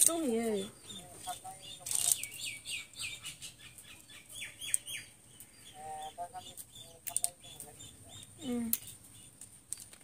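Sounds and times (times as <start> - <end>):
small bird chirping: 0.0 - 10.0
sharp clicks: 1.8 - 2.4, 6.5 - 10.0.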